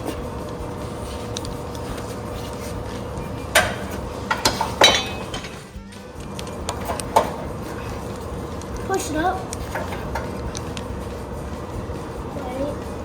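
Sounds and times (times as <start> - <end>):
metallic clinks and knocks: 3.2 - 11.6.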